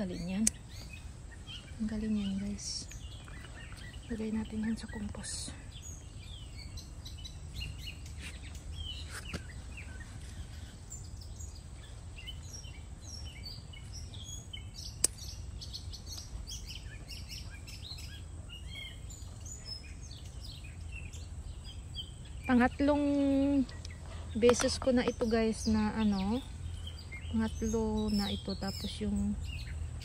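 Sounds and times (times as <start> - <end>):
small birds chirping: 0.0 - 30.0
sharp click: 0.4 - 0.6, 15.0 - 15.3.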